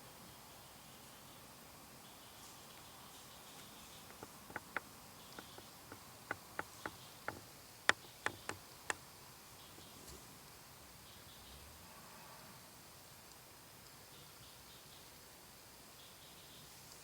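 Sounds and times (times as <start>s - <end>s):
short sharp clicks: 4.1s - 9.0s.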